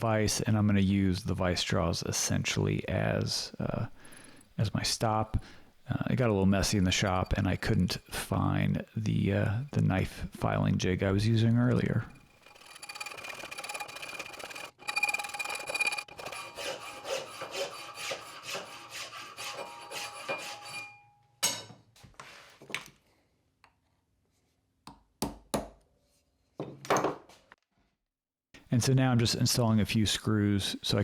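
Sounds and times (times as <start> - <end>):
file rasping on steel: 11.2 - 21.0.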